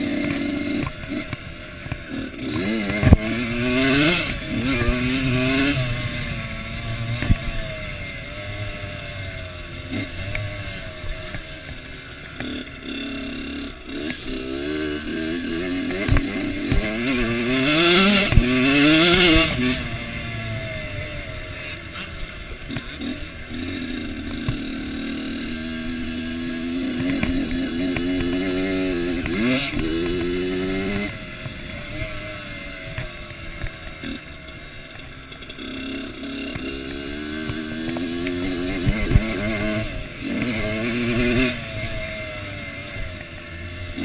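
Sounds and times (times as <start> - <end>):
motocross engine revving: 0.0 - 44.0.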